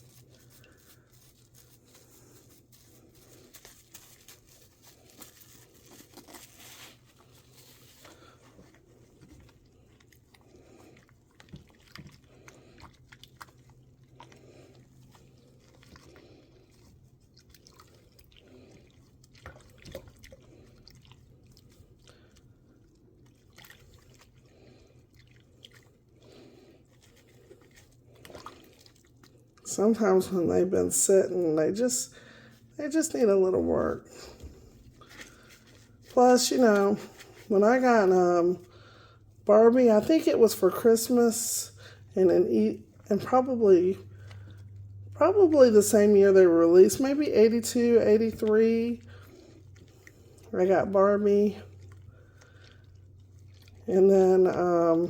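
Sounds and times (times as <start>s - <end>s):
light water sounds: 0.0s - 55.0s
steady low hum: 0.0s - 55.0s.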